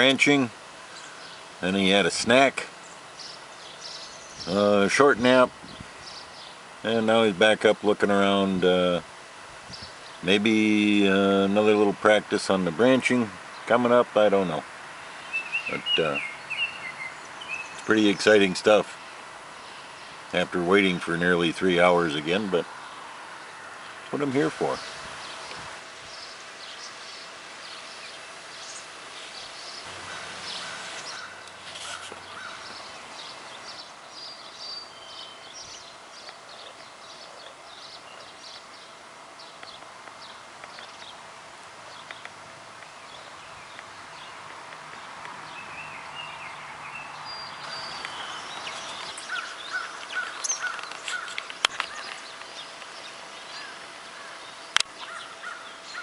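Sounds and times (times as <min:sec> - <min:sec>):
faint steady hum: 0:00.0 - 0:45.8
wild birds calling and chirping: 0:00.0 - 0:56.0
quick repeated bird calls: 0:22.1 - 0:41.2, 0:45.0 - 0:56.0.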